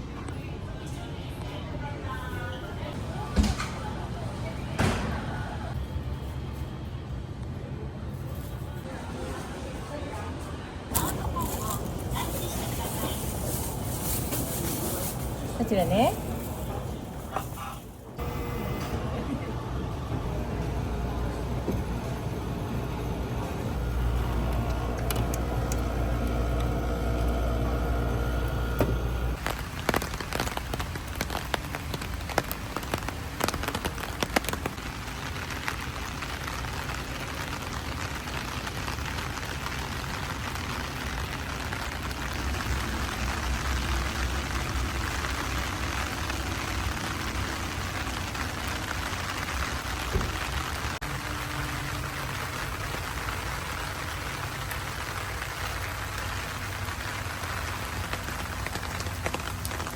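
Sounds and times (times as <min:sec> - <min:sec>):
vehicle engine humming: 0:18.0 - 0:34.6
heavy rain falling: 0:19.0 - 0:59.9.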